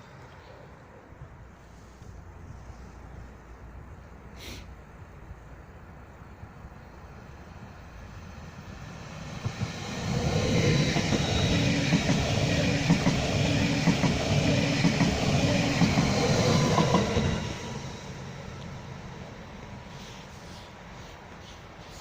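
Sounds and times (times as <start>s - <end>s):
steady train whine: 0.0s - 22.0s
train wheels clicking over rail joints: 9.2s - 17.5s.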